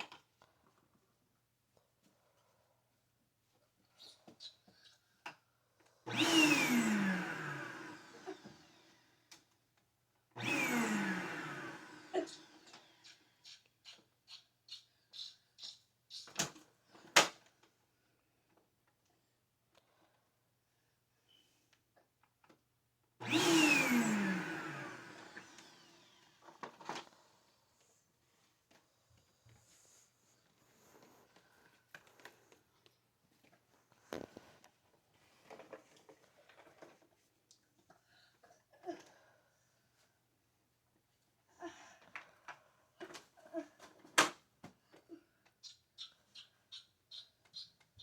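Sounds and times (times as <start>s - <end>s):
vacuum cleaner motor whine: 6.1s - 9.3s, 10.4s - 13.1s, 23.2s - 27.1s.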